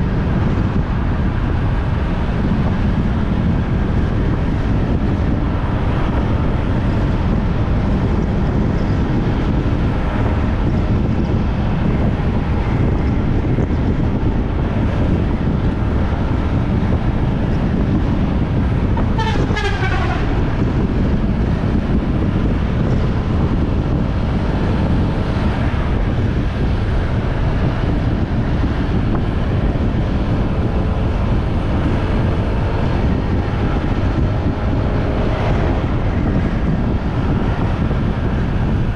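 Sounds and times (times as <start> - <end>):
motorbike wind and road noise: 0.0 - 38.9
short vehicle horn toot: 19.2 - 20.4.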